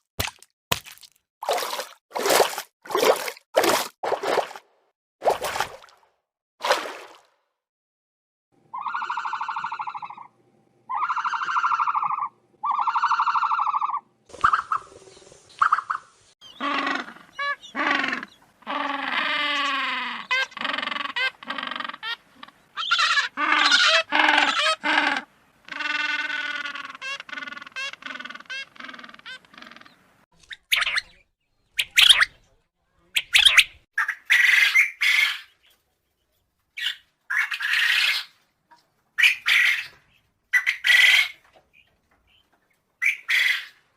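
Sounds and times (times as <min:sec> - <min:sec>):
animal calls: 0:08.7 - 0:10.3, 0:10.9 - 0:14.9, 0:15.6 - 0:30.0.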